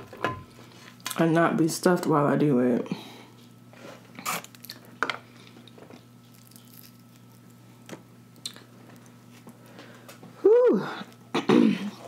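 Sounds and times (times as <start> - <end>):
mouth smacks and clicks chewing: 8.4 - 8.7.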